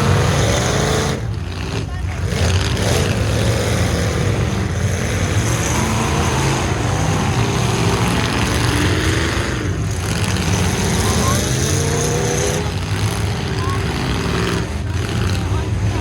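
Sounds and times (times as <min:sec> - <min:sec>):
truck engines revving: 0:00.0 - 0:16.0.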